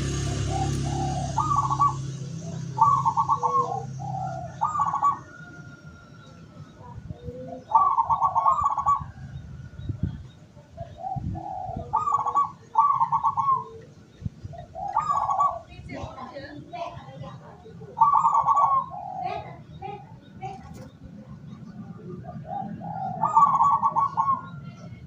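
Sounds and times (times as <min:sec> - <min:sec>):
dove cooing: 0:00.0 - 0:25.0.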